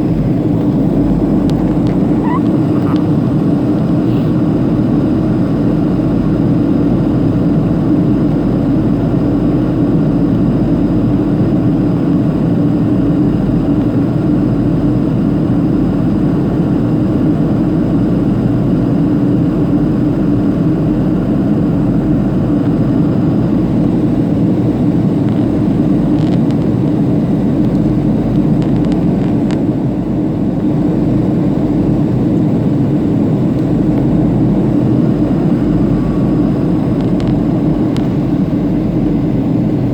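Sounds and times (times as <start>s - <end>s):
airflow over fuselage: 0.0s - 6.0s, 21.3s - 39.9s
jet engines roaring: 0.0s - 6.0s, 30.1s - 39.9s.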